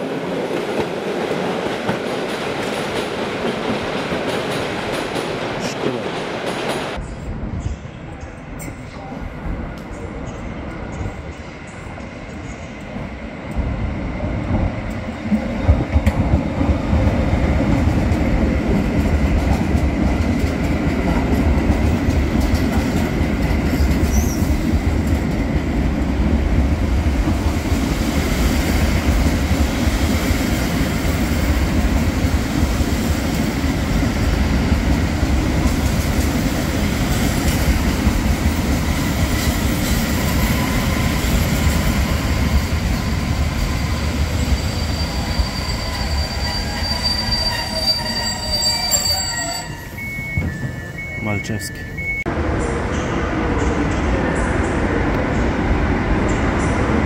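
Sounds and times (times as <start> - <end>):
train wheels rumbling on rails: 0.0 - 57.0
clickety-clack over rail joints: 0.1 - 7.0, 10.7 - 44.3
thin high wheel squeal: 44.4 - 51.0.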